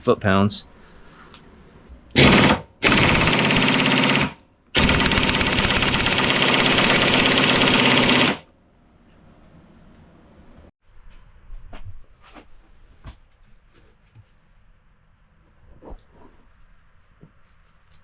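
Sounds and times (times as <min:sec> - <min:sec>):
impact wrench hammering: 0:02.2 - 0:08.4.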